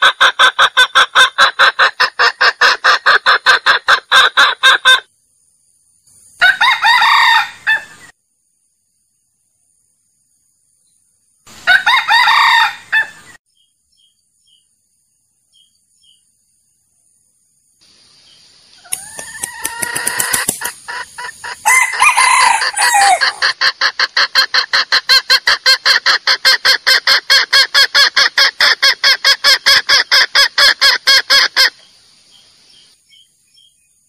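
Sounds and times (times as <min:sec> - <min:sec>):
junglefowl fast clucks: 0:00.0 - 0:05.1, 0:18.8 - 0:31.8
junglefowl crow-like calls: 0:06.4 - 0:08.1, 0:11.6 - 0:13.4, 0:18.8 - 0:31.7.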